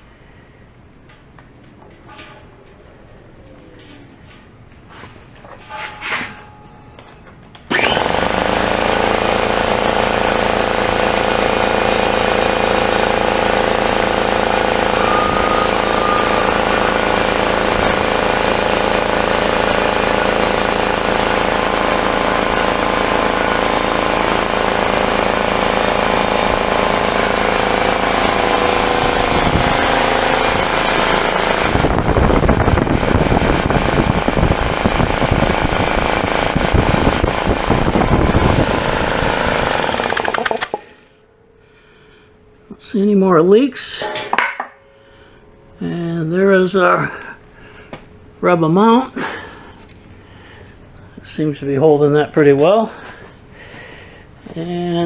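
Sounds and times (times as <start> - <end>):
air compressor running: 7.7 - 42.4.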